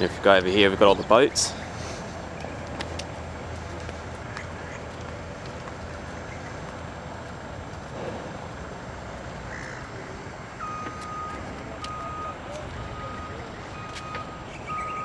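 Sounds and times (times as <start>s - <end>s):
outdoor background noise: 0.0s - 15.0s
bird calling: 1.0s - 7.3s, 9.3s - 15.0s
vehicle reversing beeper: 9.9s - 15.0s.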